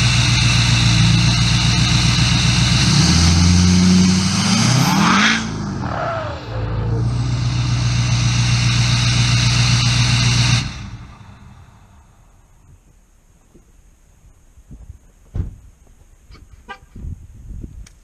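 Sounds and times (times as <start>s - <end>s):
diesel engine revving and idling: 0.0s - 12.5s.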